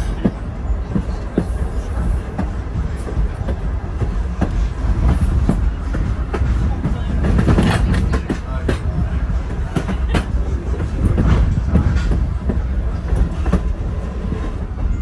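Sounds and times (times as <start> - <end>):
train rumbling along track: 0.0 - 15.0.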